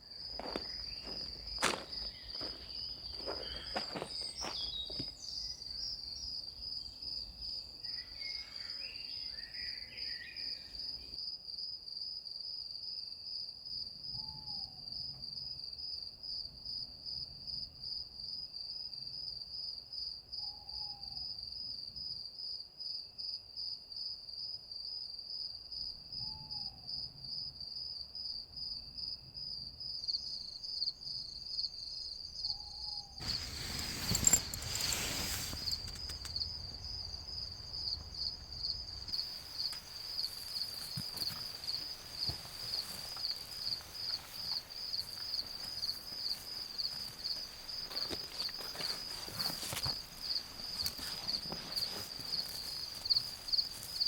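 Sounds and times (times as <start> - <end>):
crickets chirping: 0.0 - 54.0
clicks and rustles: 33.2 - 47.2, 47.8 - 54.0.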